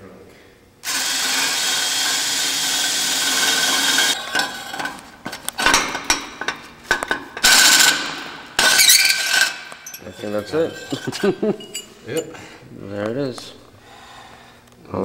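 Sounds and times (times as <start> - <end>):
power drill cutting metal: 0.8 - 5.0, 7.4 - 11.9
cutter scraping metal: 0.9 - 12.4.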